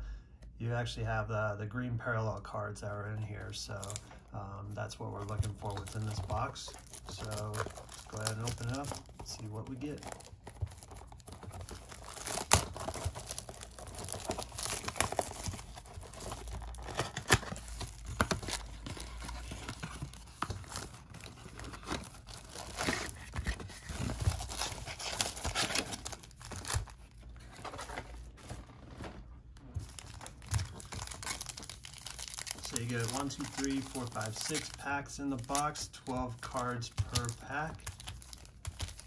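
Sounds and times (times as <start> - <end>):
wrapping crinkling: 2.9 - 39.0
cardboard box tearing: 5.4 - 28.6, 29.8 - 34.7.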